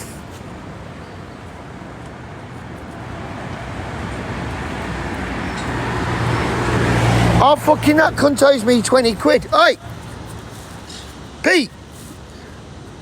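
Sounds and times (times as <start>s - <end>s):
motor vehicle approaching: 2.8s - 10.7s.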